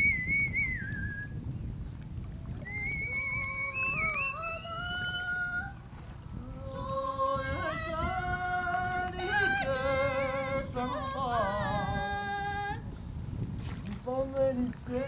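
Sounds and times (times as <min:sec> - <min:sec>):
woman singing unaccompanied: 0:03.1 - 0:12.9, 0:14.0 - 0:15.0.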